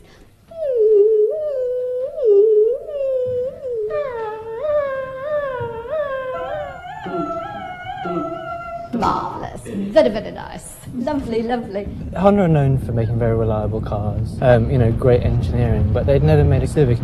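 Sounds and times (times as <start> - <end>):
person humming wordless tone: 0.0 - 9.9.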